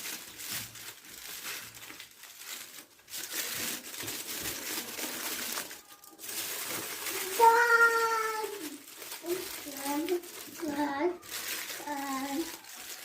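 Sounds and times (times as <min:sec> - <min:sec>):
foil crinkling: 0:00.0 - 0:13.0.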